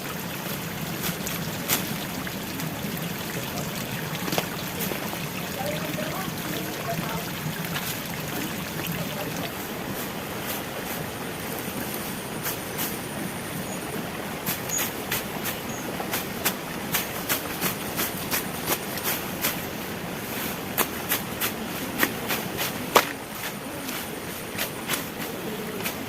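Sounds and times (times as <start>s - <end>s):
running water rushing: 0.0s - 26.0s.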